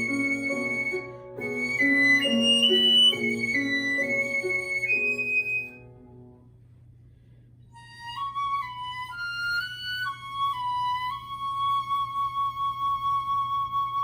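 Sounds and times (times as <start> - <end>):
flute playing: 0.0 - 6.2, 7.7 - 14.0
piano chord: 0.0 - 6.7.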